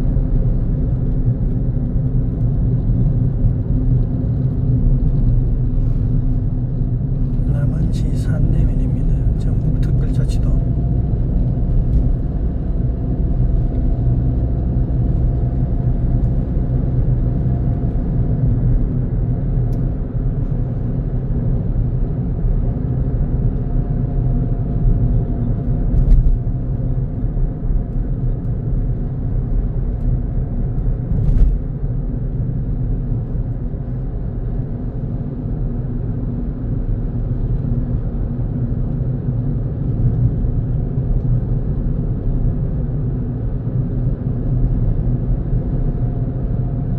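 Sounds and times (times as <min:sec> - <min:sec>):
car engine and tyre rumble: 0:00.0 - 0:46.9.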